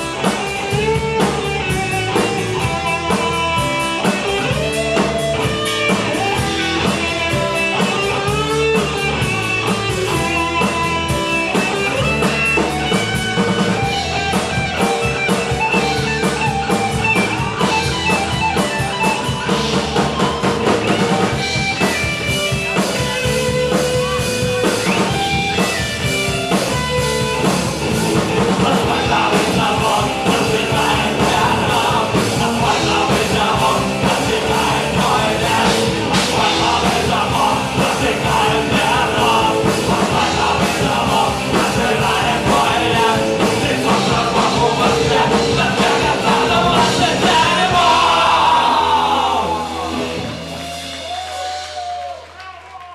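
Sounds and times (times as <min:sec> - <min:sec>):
punk rock band playing: 0:00.0 - 0:52.1
electric guitar: 0:00.0 - 0:52.2
drums: 0:00.0 - 0:52.9
person singing: 0:27.9 - 0:50.3.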